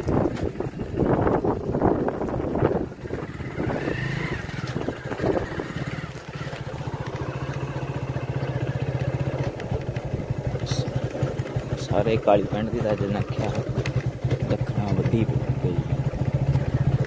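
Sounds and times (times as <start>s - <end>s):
wind noise on microphone: 0.0s - 6.2s
motorcycle engine idling: 0.0s - 17.0s.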